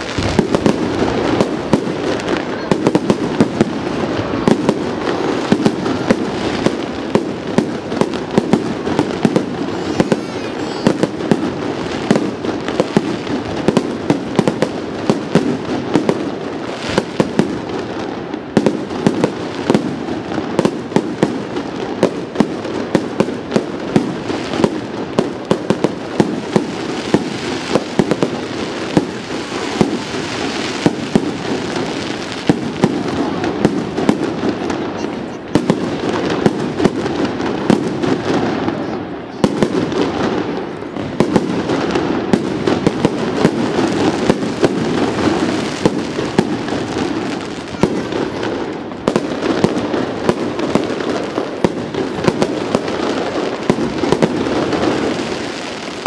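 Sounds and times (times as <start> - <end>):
firework shells bursting: 0.0 - 16.1.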